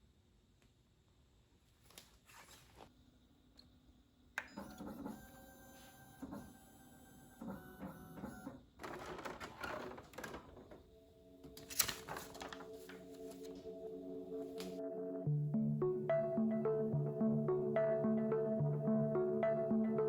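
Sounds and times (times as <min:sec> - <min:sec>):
printer motors humming: 0:04.5 - 0:10.4
soft music: 0:10.3 - 0:20.0.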